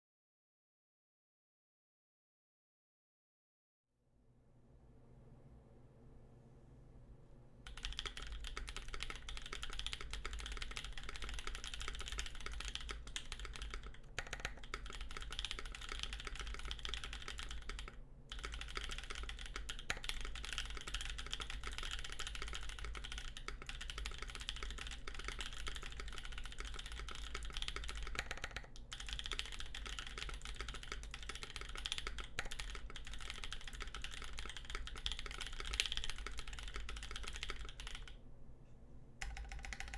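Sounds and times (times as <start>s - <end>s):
mechanical keyboard typing: 7.7s - 38.2s, 39.2s - 39.9s.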